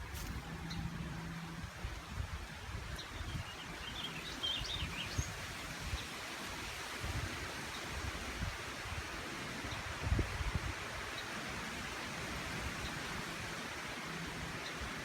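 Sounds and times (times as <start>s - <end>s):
rustling hiss: 0.0s - 2.6s
wind buffeting microphone: 0.0s - 11.1s.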